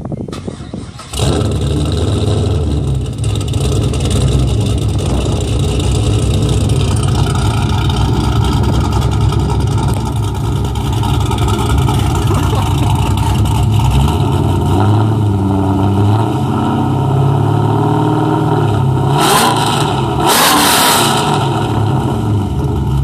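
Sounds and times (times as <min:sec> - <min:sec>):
car engine starter cranking: 0:00.3 - 0:01.6
car engine idling loudly: 0:01.1 - 0:15.9.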